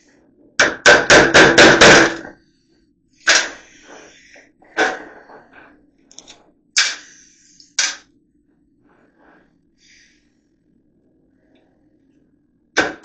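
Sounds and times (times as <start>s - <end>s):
hammer striking nails into wood: 0.6s - 2.3s.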